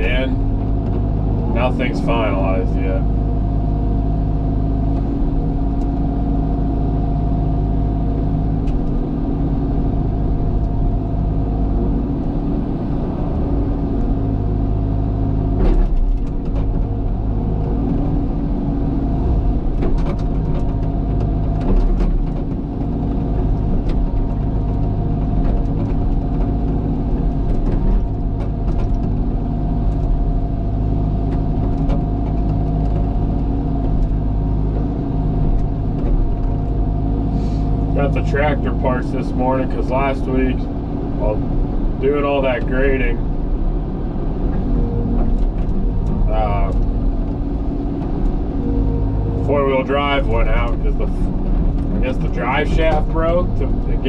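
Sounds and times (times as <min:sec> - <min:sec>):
excavator diesel engine running: 0:00.0 - 0:54.0
sharp clicks and knocks: 0:15.6 - 0:18.3, 0:19.2 - 0:36.8, 0:44.1 - 0:54.0.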